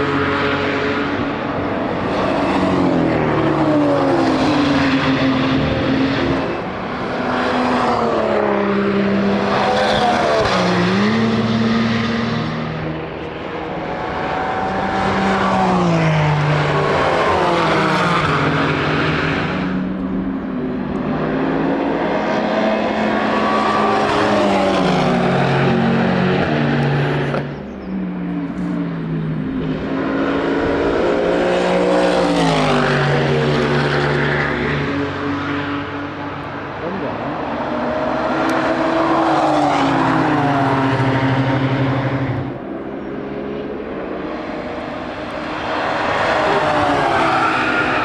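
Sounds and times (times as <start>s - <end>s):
racing cars passing: 0.0s - 48.0s.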